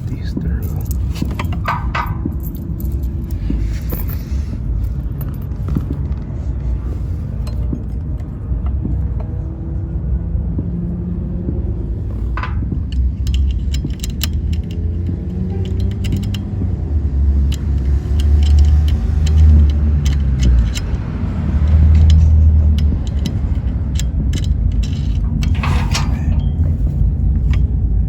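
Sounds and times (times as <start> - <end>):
hardware clicks and clinks: 0.0 - 6.4, 11.4 - 28.0
steady low rumble: 0.0 - 28.0.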